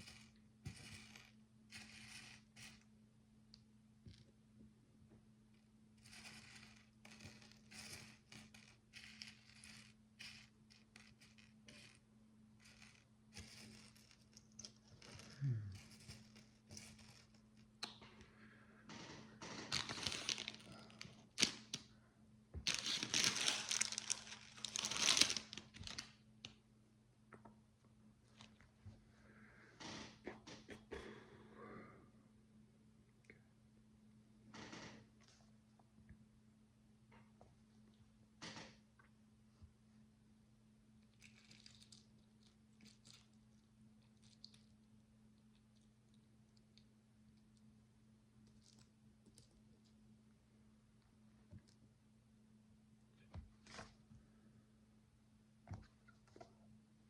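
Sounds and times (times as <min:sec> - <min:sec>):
plastic bricks scraping and clicking: 0:00.0 - 0:02.8, 0:06.0 - 0:12.0, 0:19.6 - 0:21.8, 0:22.7 - 0:26.0
low electrical hum: 0:00.0 - 0:57.0.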